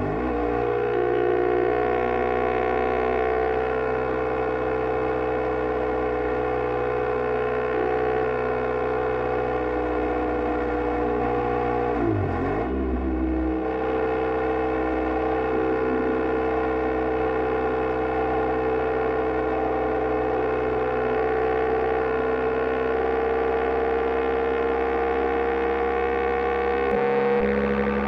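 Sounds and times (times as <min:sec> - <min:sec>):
motorcycle engine cruising: 0:00.0 - 0:28.0.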